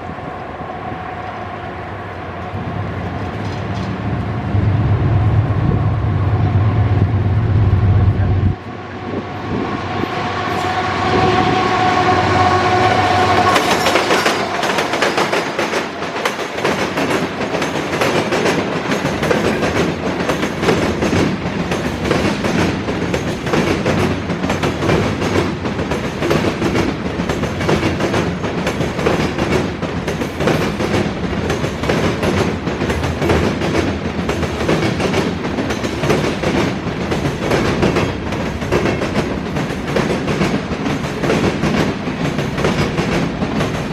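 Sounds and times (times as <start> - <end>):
train wheels rumbling on rails: 0.0 - 43.9
train horn: 8.1 - 15.0
wheels clacking over rail joints: 13.4 - 43.9.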